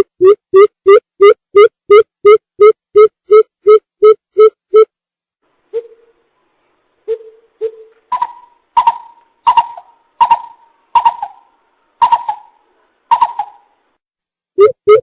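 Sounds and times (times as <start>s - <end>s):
bird hollow hoots: 5.7s - 6.1s, 7.1s - 13.7s.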